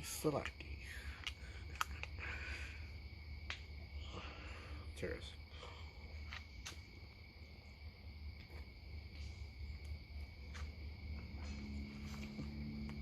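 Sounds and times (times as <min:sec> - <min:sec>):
crickets trilling: 0:00.0 - 0:13.0
low hum: 0:08.9 - 0:13.0
low droning tone: 0:09.1 - 0:13.0.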